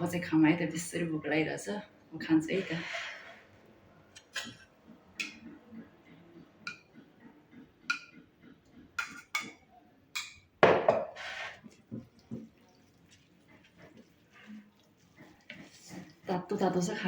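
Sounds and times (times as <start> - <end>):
tableware clattering: 9.0 - 12.4
tableware clinking: 10.2 - 11.2.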